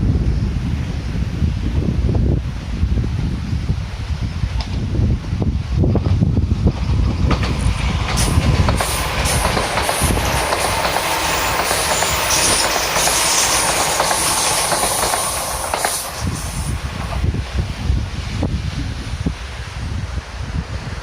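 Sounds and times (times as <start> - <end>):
train rolling noise: 0.0 - 21.0
wheels clicking over rail joints: 6.0 - 17.3.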